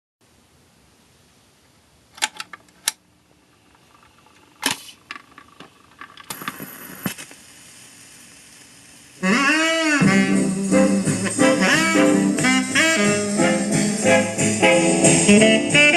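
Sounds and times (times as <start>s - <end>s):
needle hiss in record groove: 3.3s - 15.9s
record changer mechanical clicks: 3.7s - 7.5s
stylus scraping onto record: 4.6s - 7.4s.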